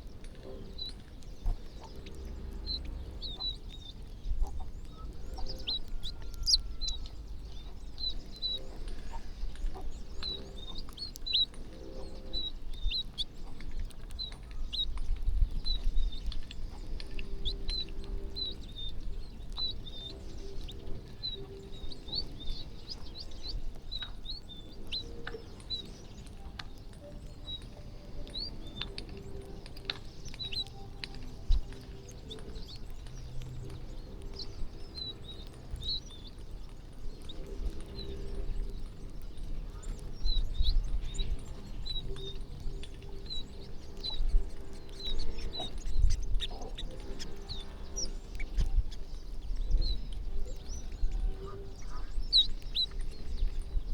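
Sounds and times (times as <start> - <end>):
small birds chirping: 0.0 - 53.9
low rumble: 0.1 - 10.6.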